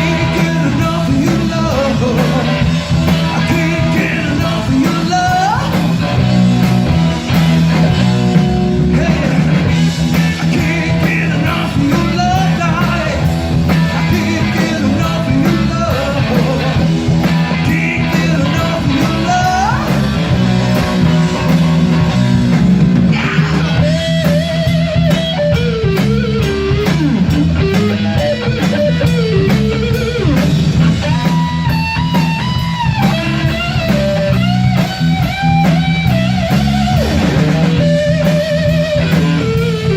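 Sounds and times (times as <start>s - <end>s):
band backing track: 0.0s - 39.9s
electric guitar rock lead: 0.0s - 39.9s.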